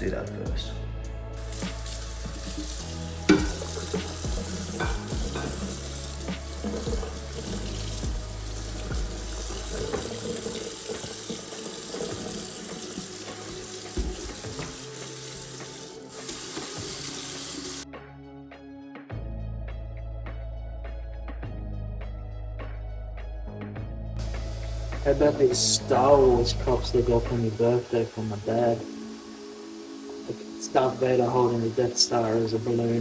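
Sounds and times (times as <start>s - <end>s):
soft background music: 0.0s - 33.0s
tap running into a sink: 1.4s - 17.8s
dishes clinking and knocking: 3.3s - 7.2s, 13.4s - 14.8s.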